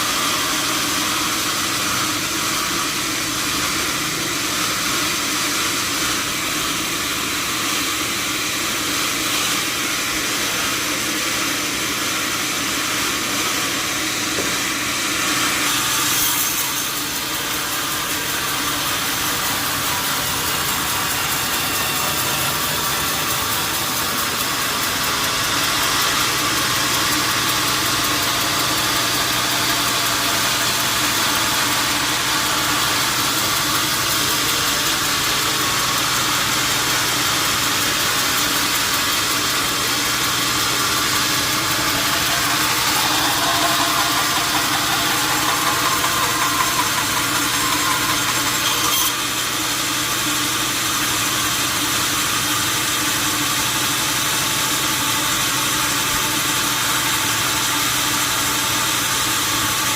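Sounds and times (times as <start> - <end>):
mechanical running noise with hum: 15.6 - 59.9.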